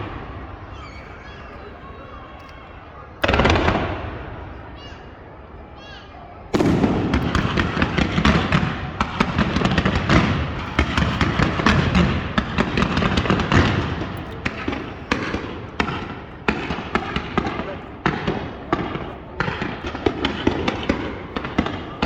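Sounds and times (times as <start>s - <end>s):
fireworks cracks and pops: 6.6s - 22.0s.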